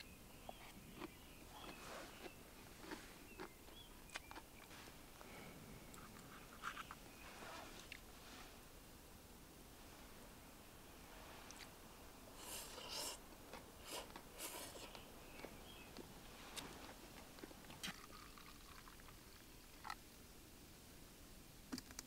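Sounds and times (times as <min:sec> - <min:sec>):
faint steady hiss: 0:00.0 - 0:22.0
soft swishes and rustles: 0:04.7 - 0:08.7.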